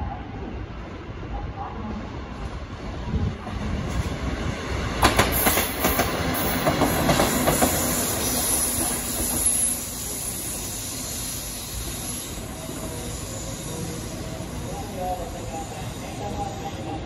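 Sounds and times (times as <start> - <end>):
freight train rumble: 0.0 - 17.0
train wheels clattering: 5.0 - 10.2.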